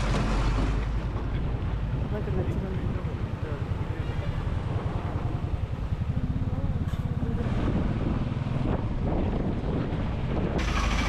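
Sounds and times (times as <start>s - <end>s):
motorcycle engine running: 1.4s - 11.0s
wind on microphone: 4.7s - 11.0s.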